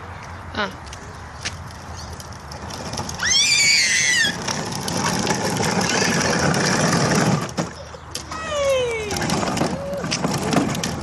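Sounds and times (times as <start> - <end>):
child squealing: 3.2 - 4.4
steady rattling noise: 4.4 - 7.8, 9.1 - 11.0.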